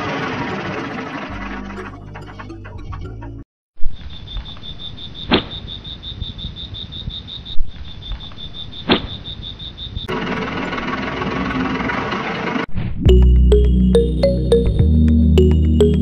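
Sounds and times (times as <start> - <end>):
music: 1.4 - 3.4, 13.1 - 16.0
cricket chirping: 3.8 - 10.2.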